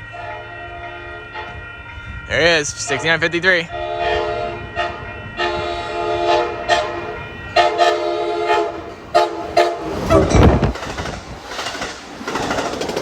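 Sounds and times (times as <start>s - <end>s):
train rushing past: 0.0s - 13.0s
train horn chord blasts: 0.1s - 1.9s, 2.9s - 10.3s.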